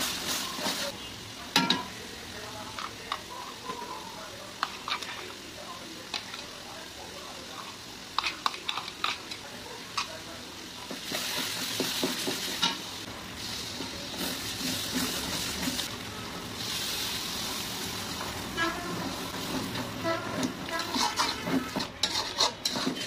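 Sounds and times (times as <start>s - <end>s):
loud sizzling in hot oil: 0.0s - 23.0s
spatula scraping steel jar: 20.1s - 23.0s.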